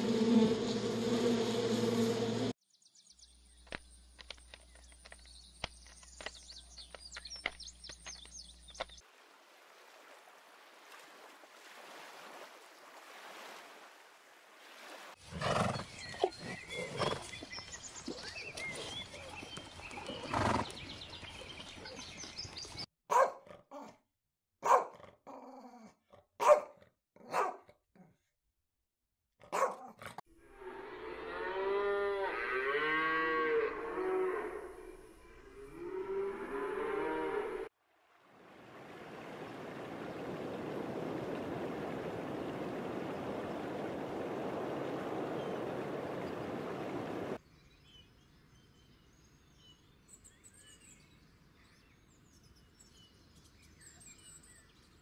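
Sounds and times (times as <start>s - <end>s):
insect buzzing: 0.0s - 2.5s
cow mooing: 30.4s - 37.7s.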